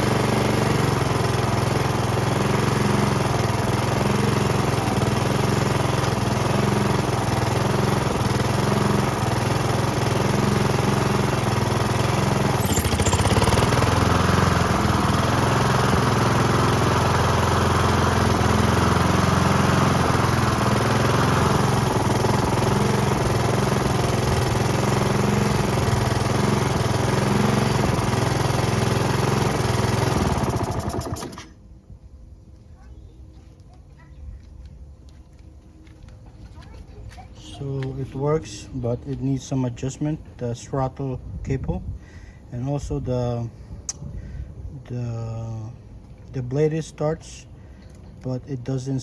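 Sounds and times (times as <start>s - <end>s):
lawn mower engine running: 0.0s - 31.8s.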